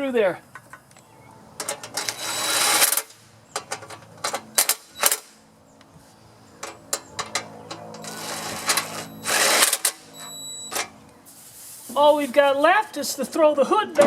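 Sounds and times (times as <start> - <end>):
scraping rustle: 6.0 - 13.0.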